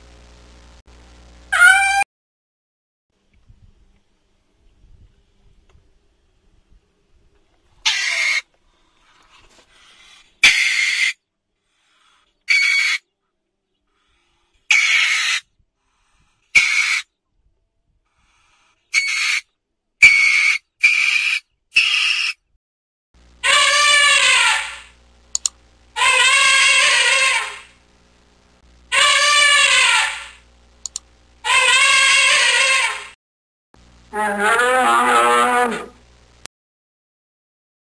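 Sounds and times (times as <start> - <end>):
animal long loud calls: 1.5 - 2.0, 23.4 - 25.0, 26.0 - 27.8, 28.9 - 30.4, 31.4 - 33.2, 34.1 - 36.0
animal short high squeaks: 23.4 - 24.9, 26.0 - 27.7, 28.9 - 30.4, 31.5 - 33.2.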